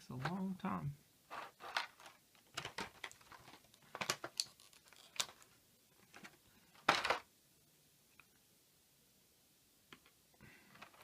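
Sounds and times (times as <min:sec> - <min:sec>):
plastic rustling: 0:01.3 - 0:07.3
plastic clicks: 0:01.7 - 0:05.5.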